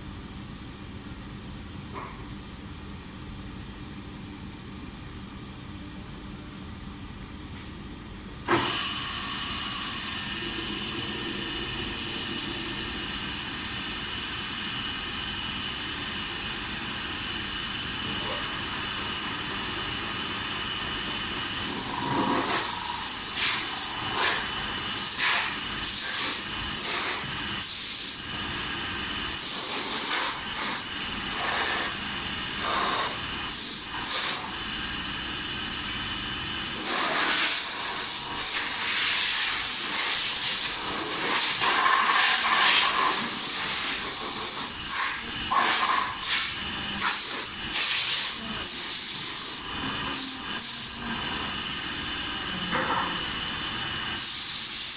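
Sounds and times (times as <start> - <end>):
machine hum: 17.1 - 37.1
hissing blasts of air: 21.6 - 28.4, 29.2 - 34.5, 36.7 - 51.0, 54.2 - 54.9.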